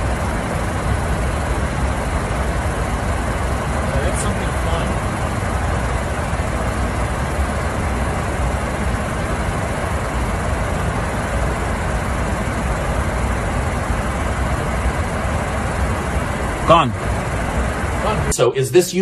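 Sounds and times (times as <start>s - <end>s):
airliner cockpit drone: 0.0s - 19.0s.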